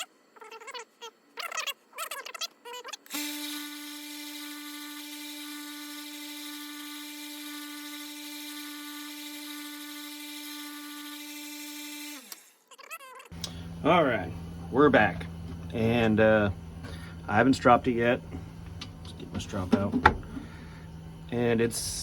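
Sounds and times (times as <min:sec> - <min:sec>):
belt sander motor humming: 0:03.1 - 0:12.7.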